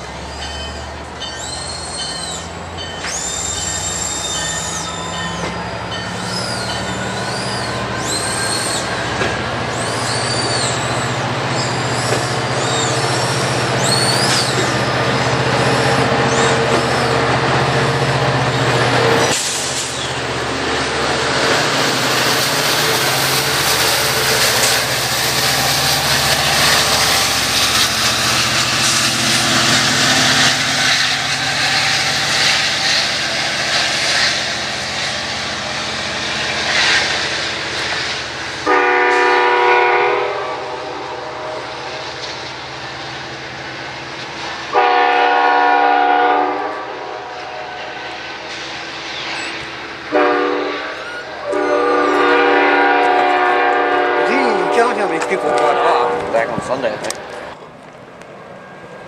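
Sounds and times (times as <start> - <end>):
train wheels rushing on rails: 0.0 - 59.0
locomotive horn blasts: 38.6 - 41.6, 44.7 - 47.6, 50.1 - 56.3.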